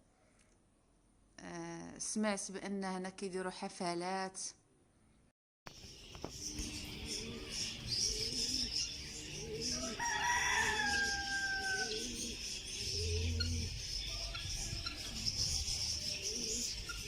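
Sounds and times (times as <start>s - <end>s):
rooster crowing: 9.6s - 12.2s.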